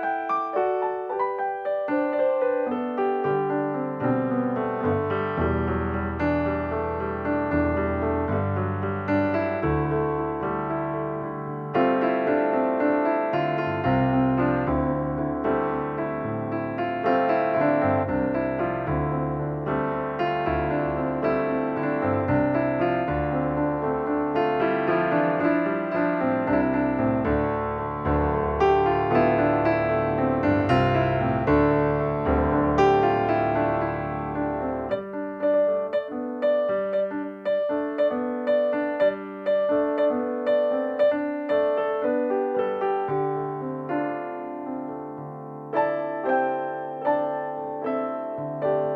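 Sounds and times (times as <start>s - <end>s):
piano playing: 0.0s - 48.9s.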